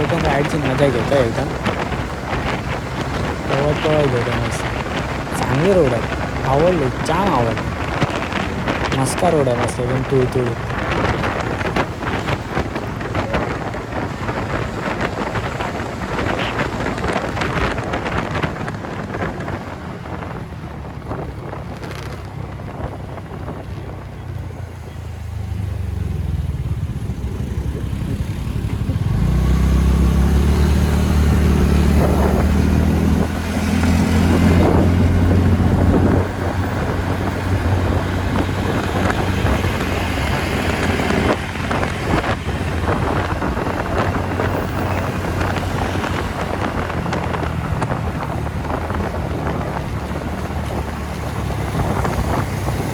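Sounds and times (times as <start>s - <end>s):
scooter engine running: 0.0s - 52.9s
wind noise on microphone: 0.0s - 52.9s
deep engine drone: 23.4s - 52.9s.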